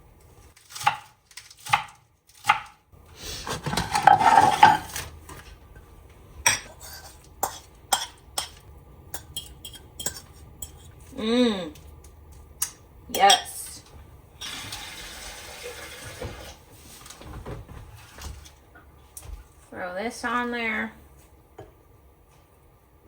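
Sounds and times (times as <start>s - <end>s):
rough scraping: 3.2s - 5.1s
utensils clinking against dishes: 3.6s - 5.0s, 6.5s - 11.0s.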